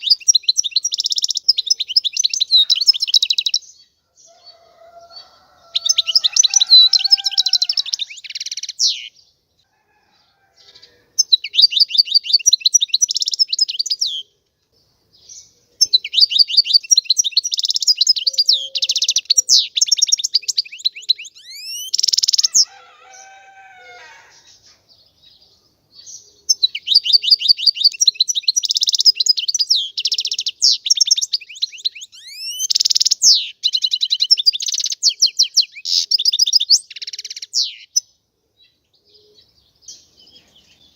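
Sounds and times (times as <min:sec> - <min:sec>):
bird twittering song: 0:00.0 - 0:09.6, 0:10.5 - 0:40.9.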